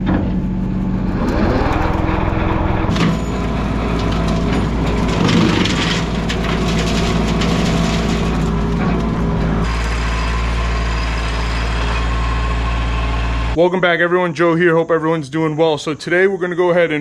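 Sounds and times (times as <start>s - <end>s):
tractor diesel engine revving: 0.0s - 13.6s.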